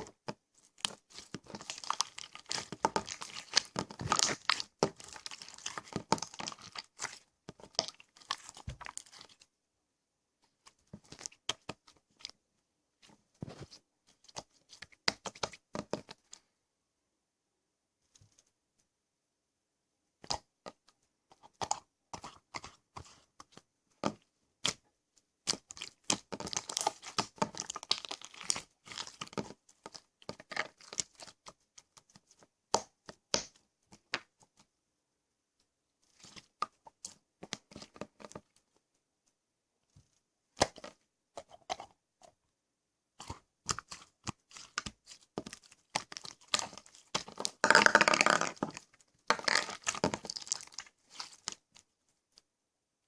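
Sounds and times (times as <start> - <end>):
slime squished by hand: 0.0 - 9.4, 25.4 - 31.5, 43.2 - 51.8.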